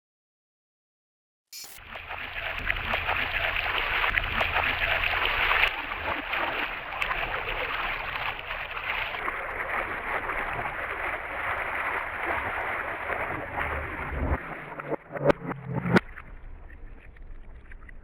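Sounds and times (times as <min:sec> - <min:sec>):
floodwater rushing: 0:01.8 - 0:14.8.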